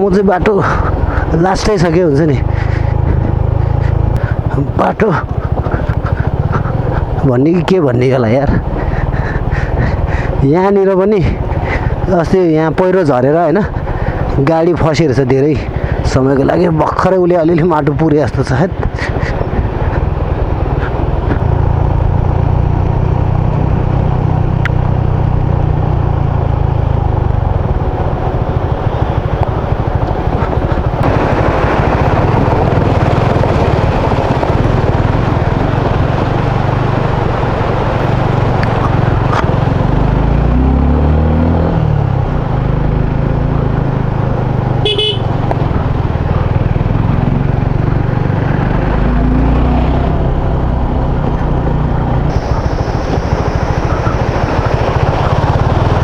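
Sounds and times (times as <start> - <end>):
motorcycle engine running: 0.0 - 56.0
wind and road noise: 0.0 - 56.0
short horn toot: 44.8 - 45.3.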